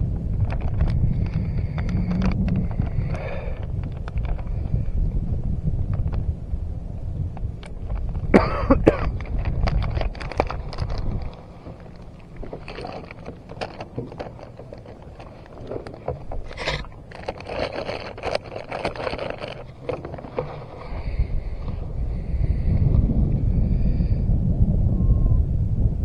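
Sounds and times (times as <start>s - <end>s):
gear clicks knocks and scrapes: 0.0s - 6.3s, 7.1s - 22.2s
low rumble: 20.7s - 26.0s.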